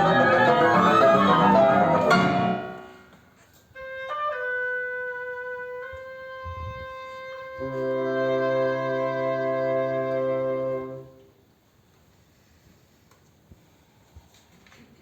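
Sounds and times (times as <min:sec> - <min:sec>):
woodwind ensemble chord: 0:00.0 - 0:03.1
lower woodwind notes: 0:00.0 - 0:03.2
woodwind sustained notes: 0:00.0 - 0:03.2.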